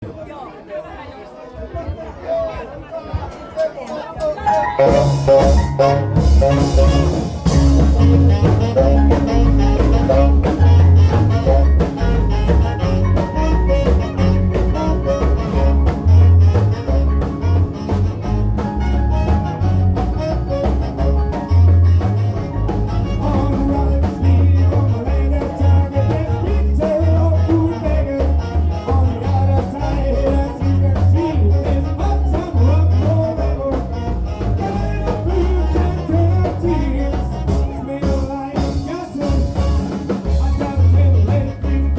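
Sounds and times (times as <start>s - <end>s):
live rock and roll band: 3.9s - 41.9s
person singing: 22.9s - 41.9s.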